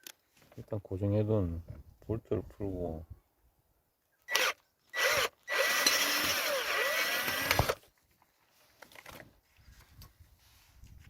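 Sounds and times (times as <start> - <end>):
power drill whining: 4.3 - 7.8.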